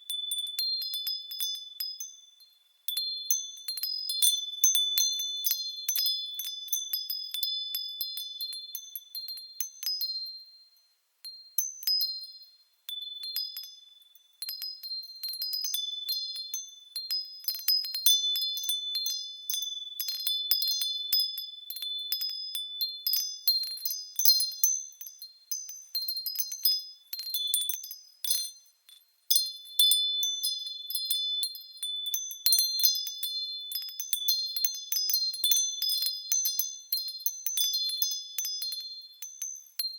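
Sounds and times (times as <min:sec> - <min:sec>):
wind chimes tinkling: 0:00.0 - 0:39.9.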